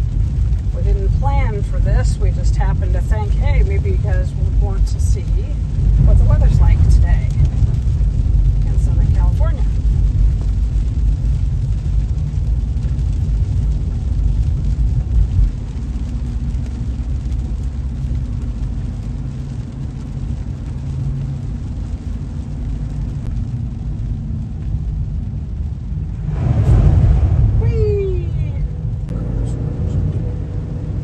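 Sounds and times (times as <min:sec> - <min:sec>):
engine and road rumble: 0:00.0 - 0:31.0
rush of noise: 0:25.2 - 0:31.0.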